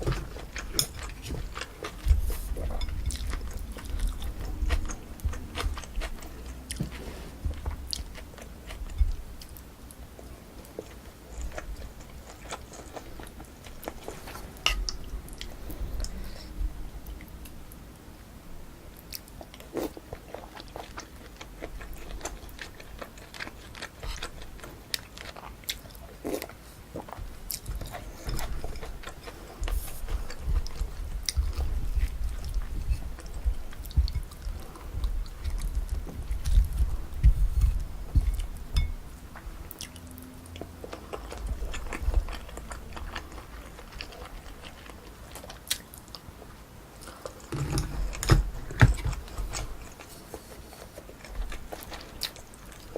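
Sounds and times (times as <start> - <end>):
person chewing food: 0.0 - 17.8, 18.9 - 52.9.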